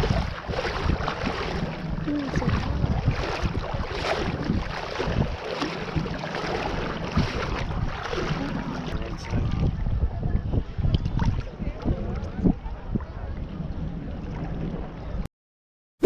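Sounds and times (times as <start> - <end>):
sea waves: 0.0 - 10.2
wind buffeting microphone: 0.0 - 15.2
faint indistinct voices: 7.2 - 15.2.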